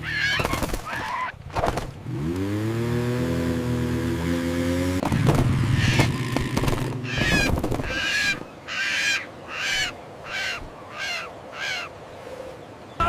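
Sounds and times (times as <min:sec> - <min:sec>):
seagulls squawking: 0:00.0 - 0:01.4, 0:05.1 - 0:12.1
low rumble with clattering clicks: 0:05.0 - 0:08.0.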